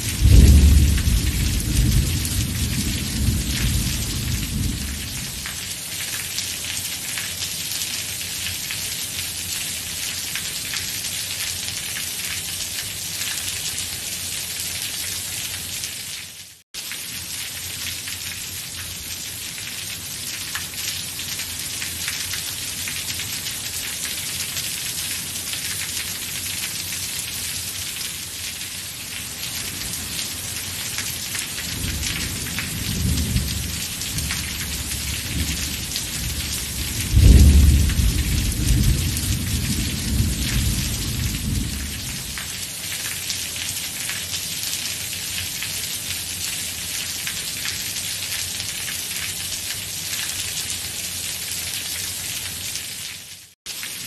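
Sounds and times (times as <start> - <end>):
thunder: 0.0 - 5.5, 31.7 - 42.4
steady rain falling: 0.0 - 54.0.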